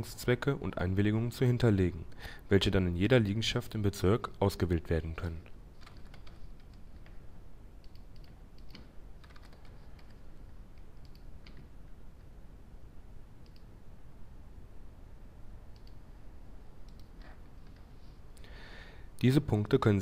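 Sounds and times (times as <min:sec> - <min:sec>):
low room hiss: 0:00.0 - 0:20.0
computer keys and mouse clicks: 0:05.8 - 0:07.2, 0:07.8 - 0:11.7, 0:13.4 - 0:13.7, 0:15.7 - 0:16.0, 0:16.8 - 0:17.8.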